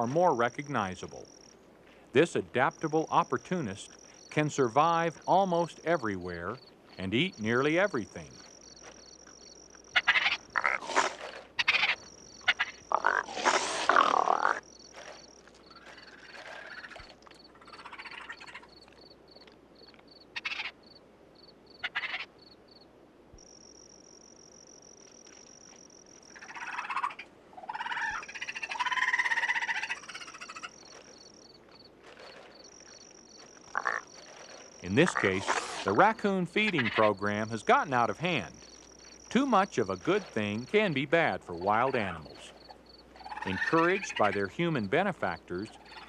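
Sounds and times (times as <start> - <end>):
night insects chirping: 0.0 - 46.0
raccoons chittering and growling: 9.9 - 20.8, 21.8 - 22.3, 26.3 - 46.0.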